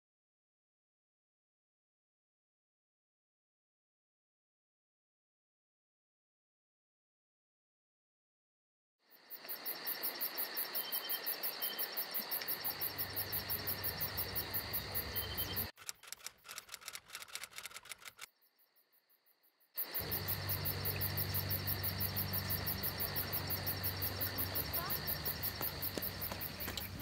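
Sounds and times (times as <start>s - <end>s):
insects chirping: 9.0s - 27.0s.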